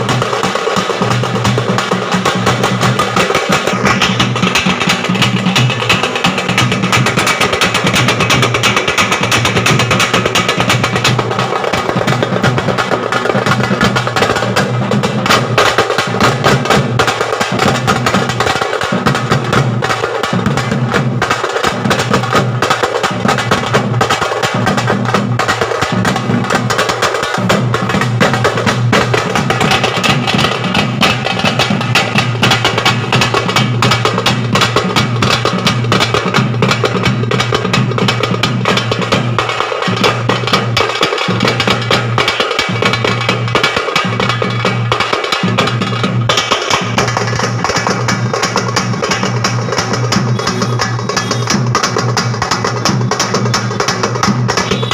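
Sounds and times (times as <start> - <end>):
drum band fast loud rhythm: 0.0 - 54.9.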